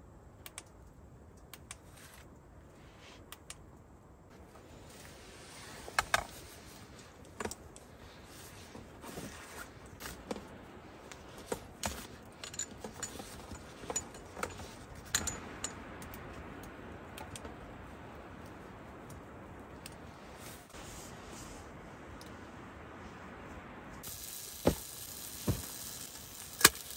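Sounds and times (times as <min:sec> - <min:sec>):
faint steady hiss: 0:00.0 - 0:26.9
small objects clicking and clinking: 0:24.0 - 0:26.9.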